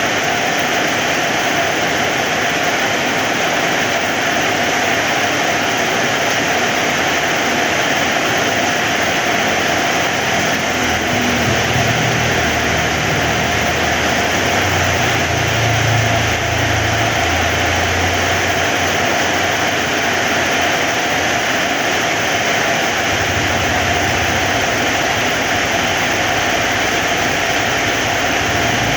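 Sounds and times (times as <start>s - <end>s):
heavy rain falling: 0.0s - 28.9s
low rumble: 10.2s - 18.8s, 23.0s - 28.9s.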